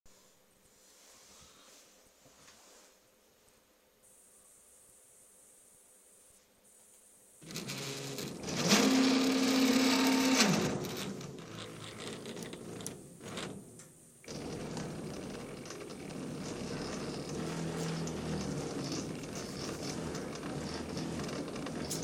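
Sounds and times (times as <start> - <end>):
gantry motor whine: 7.4 - 22.0.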